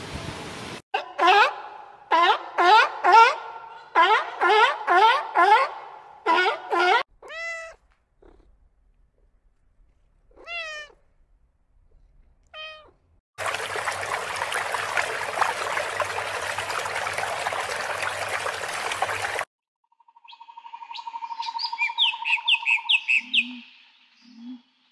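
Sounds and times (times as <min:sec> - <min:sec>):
cat meowing: 0:07.2 - 0:08.4, 0:10.3 - 0:11.0, 0:12.5 - 0:13.0
pond water splashing: 0:13.4 - 0:19.5.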